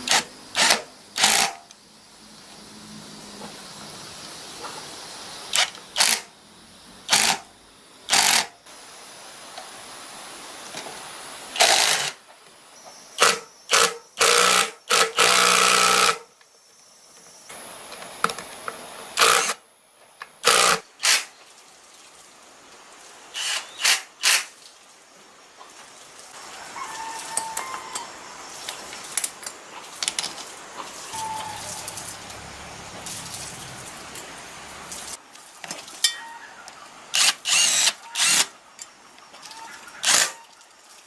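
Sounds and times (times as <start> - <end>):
low hiss: 0.0 - 41.0
workshop tool bursts: 7.1 - 7.5.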